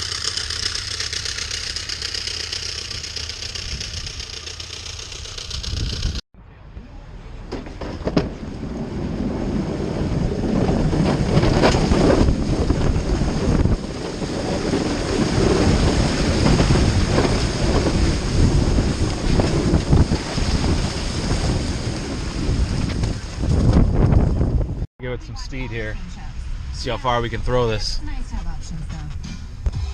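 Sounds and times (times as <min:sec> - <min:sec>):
plow truck pushing wet snow: 0:00.0 - 0:06.2, 0:07.3 - 0:24.5
wind on microphone: 0:05.5 - 0:06.2, 0:08.4 - 0:24.9.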